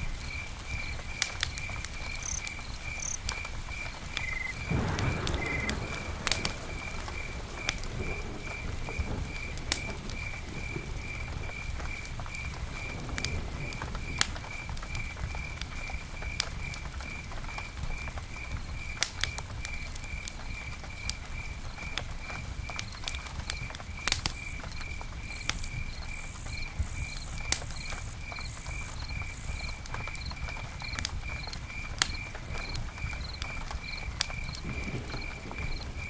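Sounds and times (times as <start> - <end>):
campfire crackling and popping: 0.0 - 36.0
steady pulsing chirp: 4.2 - 4.8.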